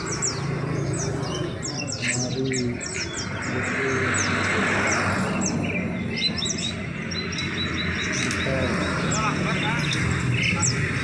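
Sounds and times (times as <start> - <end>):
songbirds chirping and twittering: 0.0 - 11.0
steady background noise: 0.0 - 11.0.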